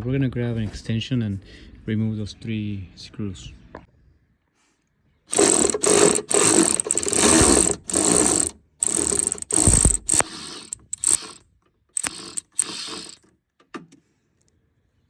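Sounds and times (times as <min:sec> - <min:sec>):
ratchet wrench clicking: 0:05.3 - 0:11.4, 0:12.0 - 0:13.2.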